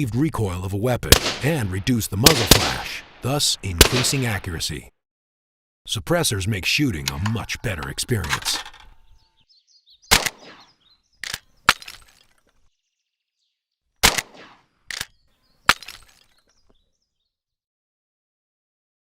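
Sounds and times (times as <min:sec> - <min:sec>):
gunshots: 0:01.1 - 0:04.7, 0:10.1 - 0:10.7, 0:14.0 - 0:14.6.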